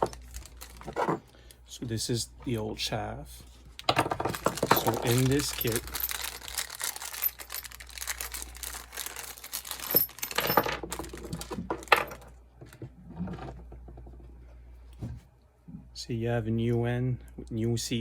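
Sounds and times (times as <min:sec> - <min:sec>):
packaging rustling: 0:00.0 - 0:01.2, 0:03.8 - 0:12.2.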